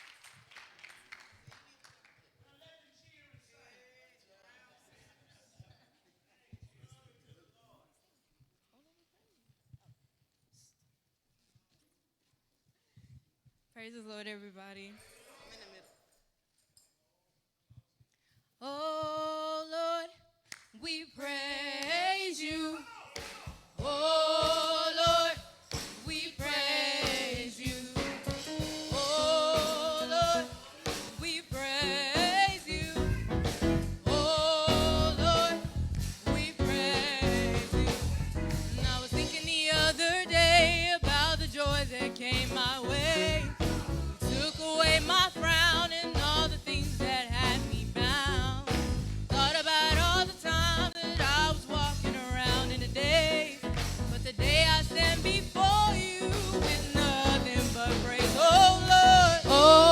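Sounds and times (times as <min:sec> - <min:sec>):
vocal group singing gospel: 0:20.9 - 0:59.9
steady beat: 0:22.6 - 0:59.9
band with heavy bass: 0:32.2 - 0:59.9.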